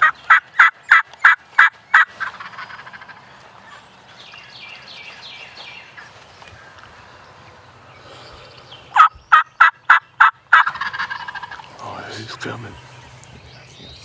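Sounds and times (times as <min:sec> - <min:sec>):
turkey yelps: 0:09.0 - 0:11.6.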